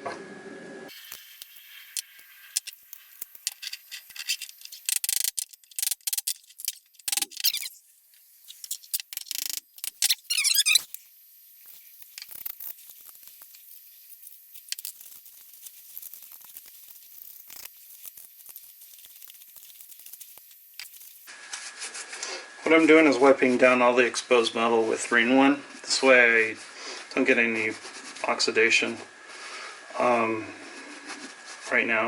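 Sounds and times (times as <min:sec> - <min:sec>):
metal parts clinking: 0:02.0 - 0:07.7.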